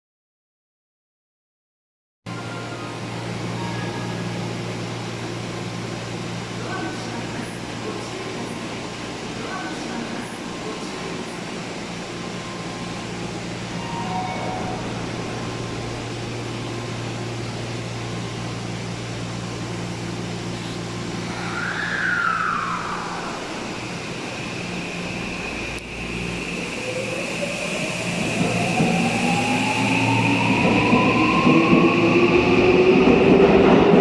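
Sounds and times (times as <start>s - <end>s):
station equipment hum: 2.3s - 31.5s
electric train motor whine: 11.1s - 33.4s.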